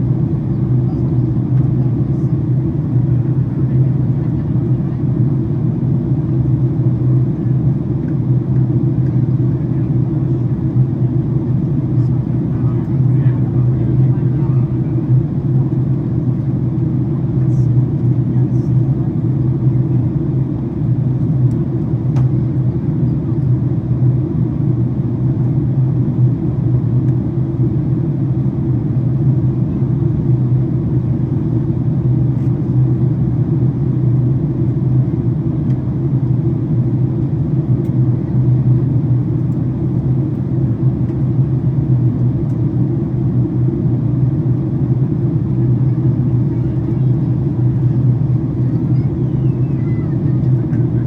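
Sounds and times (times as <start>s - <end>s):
airliner cabin engine rumble: 0.0s - 51.0s.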